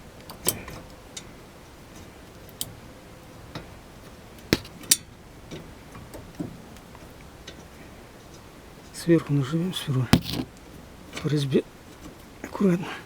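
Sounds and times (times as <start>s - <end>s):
metallic clicks and taps: 4.6s - 4.8s.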